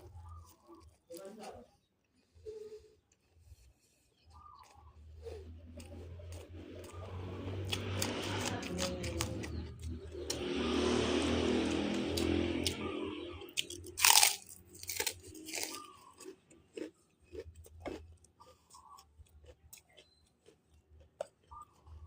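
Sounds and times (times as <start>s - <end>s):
chewing and crunching: 0.0s - 22.0s
wet mouth clicks: 4.3s - 8.1s, 17.4s - 20.2s.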